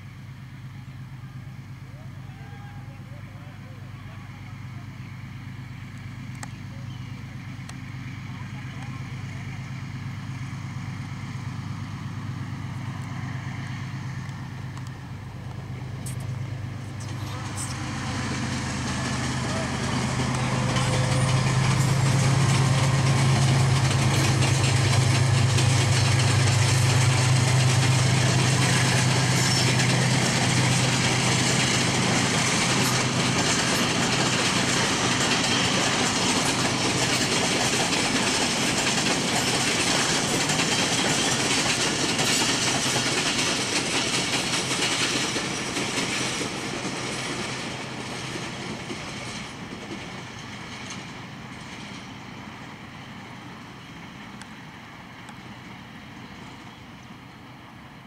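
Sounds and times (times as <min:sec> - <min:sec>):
diesel locomotive engine droning: 0:00.0 - 0:58.0
train wheels clacking over rail joints: 0:17.0 - 0:52.2.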